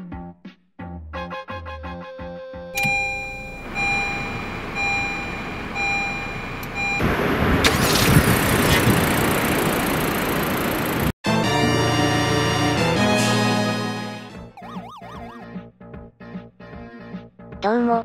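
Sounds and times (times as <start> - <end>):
dashboard chime beeping: 2.8 - 7.1
car engine cranking and running: 2.8 - 11.2.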